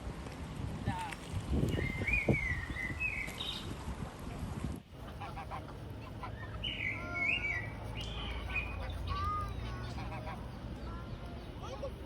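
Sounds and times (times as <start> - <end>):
birds chirping: 1.7 - 3.8, 5.1 - 12.0.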